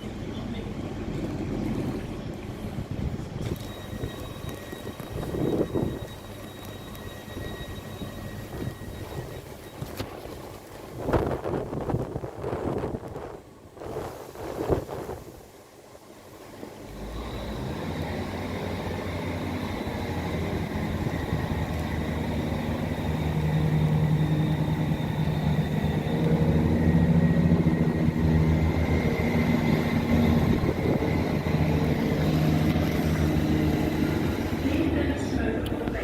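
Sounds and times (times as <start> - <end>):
train running noise: 0.0 - 36.0
faint high whine: 1.7 - 11.3, 16.8 - 36.0.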